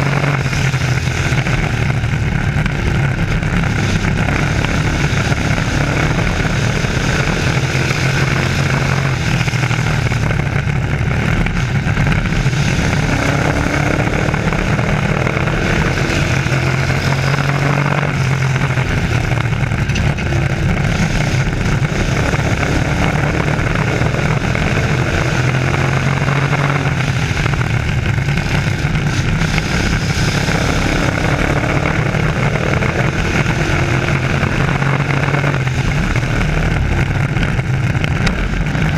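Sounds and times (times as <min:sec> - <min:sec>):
race truck engines: 0:00.0 - 0:38.9.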